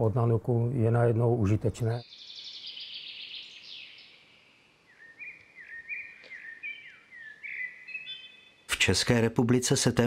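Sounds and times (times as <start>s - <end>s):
birds singing: 0.0s - 10.0s.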